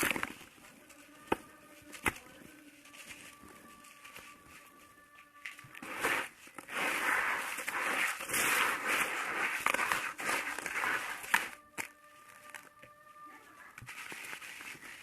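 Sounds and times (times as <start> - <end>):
sand bowl cracking: 5.4 - 12.8
gritty sand crunching: 5.8 - 11.6.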